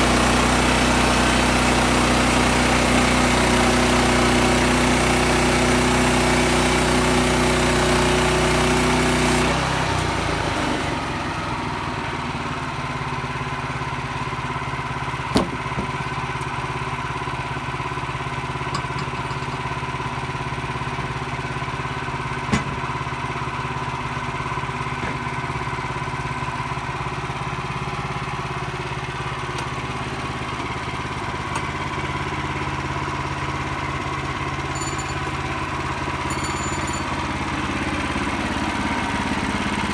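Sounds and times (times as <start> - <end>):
gasoline engine running: 0.0 - 39.9.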